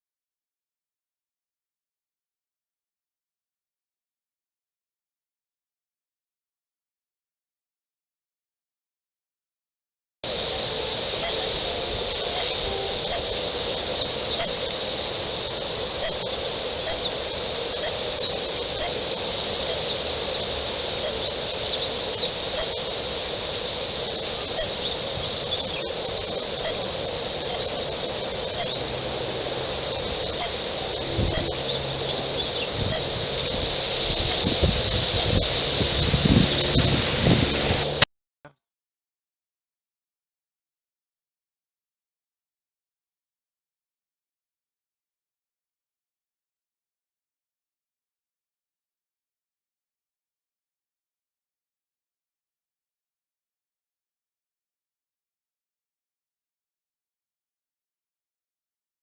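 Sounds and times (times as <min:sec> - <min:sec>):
faint steady hiss: 0:10.3 - 0:38.1
bird call sharp high note: 0:12.3 - 0:13.5.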